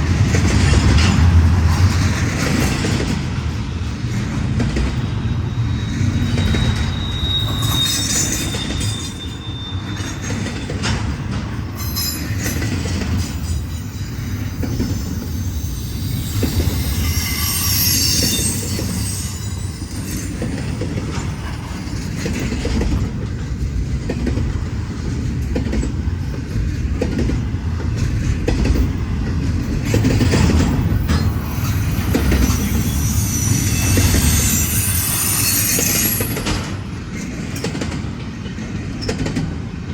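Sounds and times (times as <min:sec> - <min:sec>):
freight train rumbling past: 0:00.0 - 0:39.9
high wheel squeal: 0:05.0 - 0:22.0, 0:30.0 - 0:37.0
wheels clicking over rail joints: 0:19.8 - 0:39.9.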